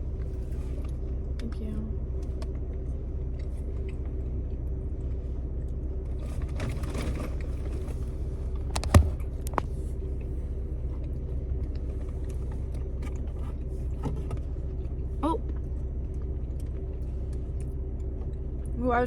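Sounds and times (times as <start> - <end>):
car cabin engine rumble: 0.0 - 19.0.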